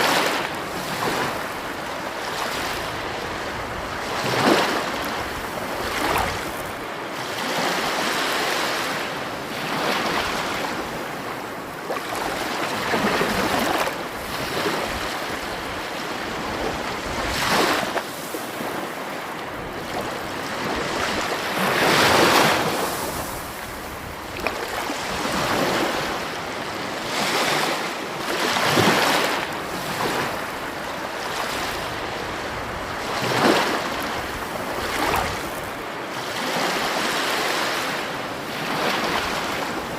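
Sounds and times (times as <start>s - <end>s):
sea waves washing on shore: 0.0s - 39.9s.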